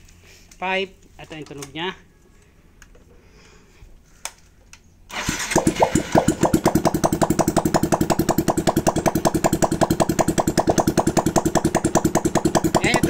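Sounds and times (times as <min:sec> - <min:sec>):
loud rapid exhaust popping: 0:05.1 - 0:13.0
motorcycle engine starting and idling: 0:05.1 - 0:13.0.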